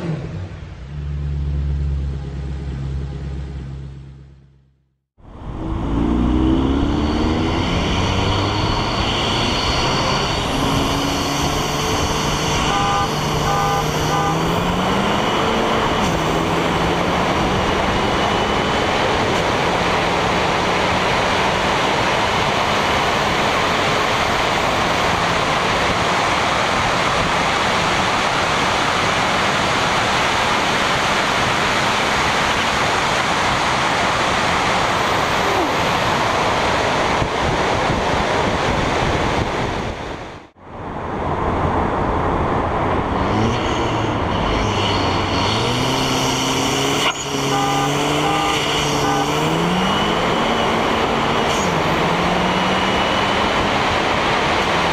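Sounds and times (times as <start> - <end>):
car engine accelerating: 0.0 - 54.9
wind on microphone: 35.1 - 43.9.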